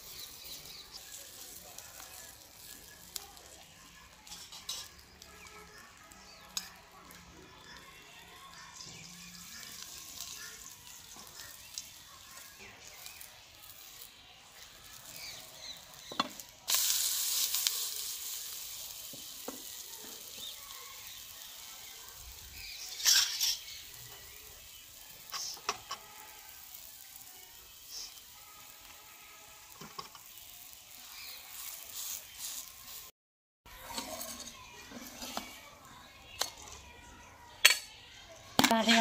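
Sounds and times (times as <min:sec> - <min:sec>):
flatbread sizzling in oil: 0:00.0 - 0:33.1
spatula scraping and tapping pan: 0:25.2 - 0:26.2, 0:29.8 - 0:30.4, 0:33.8 - 0:35.6.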